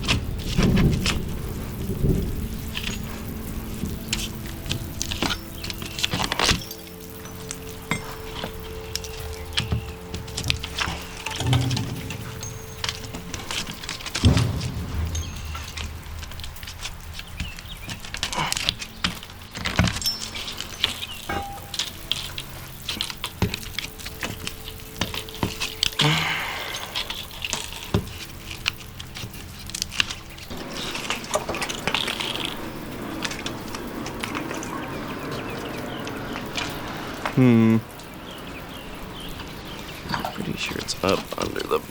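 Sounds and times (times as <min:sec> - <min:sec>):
steady hiss: 0:00.0 - 0:41.9
light metallic clinks: 0:05.2 - 0:26.0.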